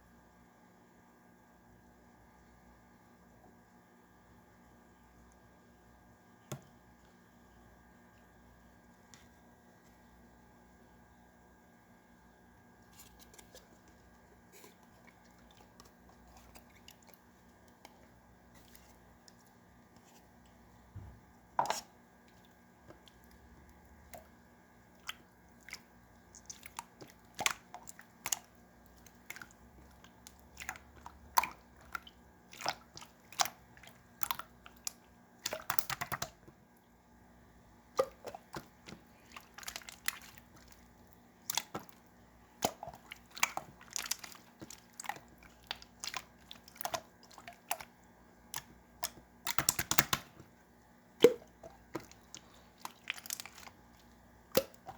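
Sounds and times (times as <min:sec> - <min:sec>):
slime popping and clicking: 0:49.0 - 0:50.3.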